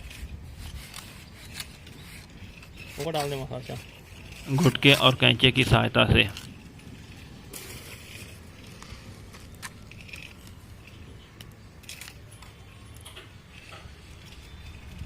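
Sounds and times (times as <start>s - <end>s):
trowel scraping mortar: 0.0s - 11.1s
low background rumble: 3.8s - 15.0s.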